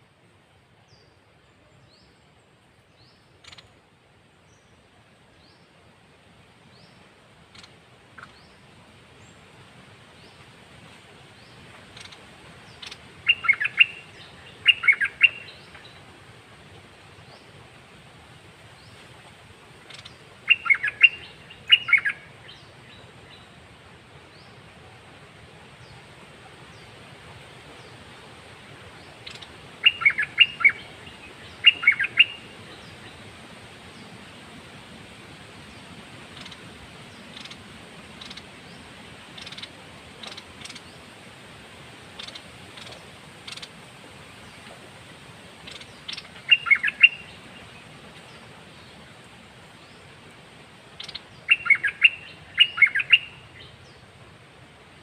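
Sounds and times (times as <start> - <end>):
faint bird chirps and ticks: 0.8 - 5.7, 6.7 - 8.6, 11.4 - 16.0, 19.8 - 23.6, 29.0 - 33.2, 35.7 - 41.1, 42.1 - 44.8, 45.6 - 54.0
songbird warbling: 3.0 - 3.8, 6.8 - 8.6, 11.4 - 16.0, 19.8 - 23.6, 29.0 - 33.2, 35.7 - 37.6, 38.2 - 38.8, 39.4 - 41.1, 42.2 - 43.8, 45.6 - 48.9, 51.0 - 54.0.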